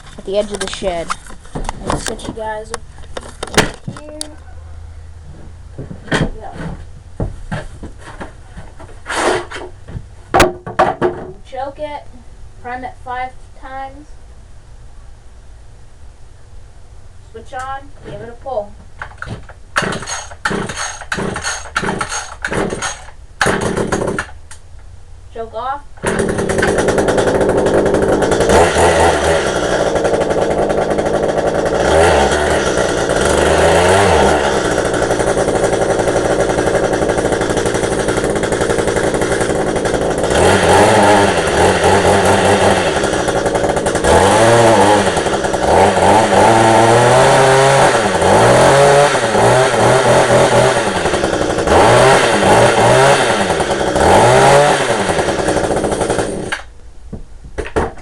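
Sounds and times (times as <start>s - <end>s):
hedge trimmer engine revving: 19.8s - 24.4s, 26.0s - 56.7s.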